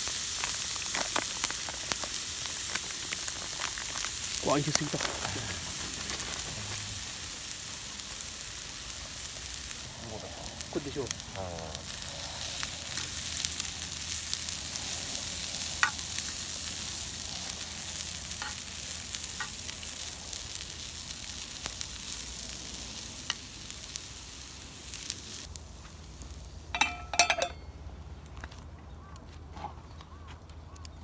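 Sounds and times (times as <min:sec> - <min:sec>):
food sizzling in a pan: 0:00.0 - 0:27.6
small ticks: 0:00.1 - 0:23.5.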